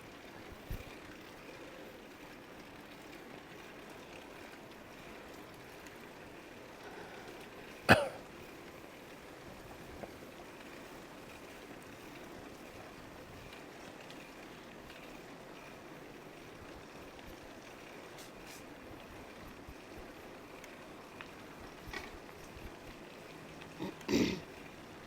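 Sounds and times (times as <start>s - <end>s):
wind and riding noise: 0.0s - 25.0s
person coughing: 7.9s - 8.2s, 23.8s - 24.5s.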